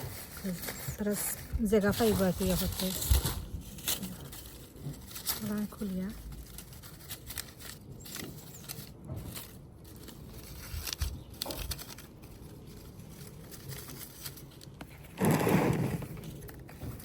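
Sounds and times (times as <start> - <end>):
clicks of plastic flower stems: 0.0 - 12.7
rustling burst: 0.0 - 17.0.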